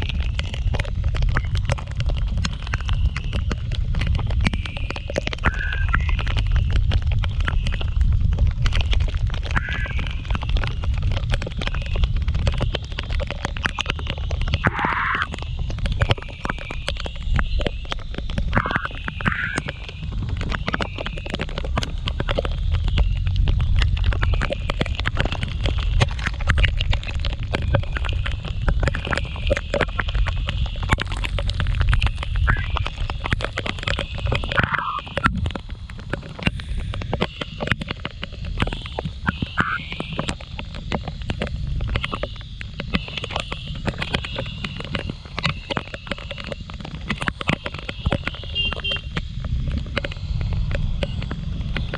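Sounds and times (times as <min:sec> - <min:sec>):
wind buffeting microphone: 0:00.0 - 0:12.9
rain hiss on wet road: 0:00.0 - 0:51.9
raindrops ticking on microphone: 0:00.0 - 0:51.9
scooter engine rumble: 0:00.0 - 0:51.9
wind noise: 0:00.0 - 0:51.9.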